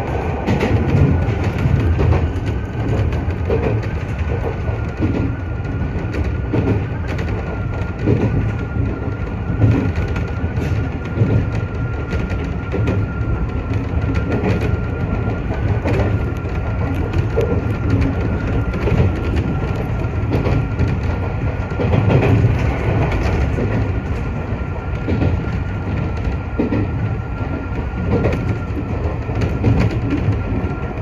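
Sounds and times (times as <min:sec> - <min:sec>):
train wheels rumbling on rails: 0:00.0 - 0:31.0
clicks over rail joints: 0:00.4 - 0:31.0.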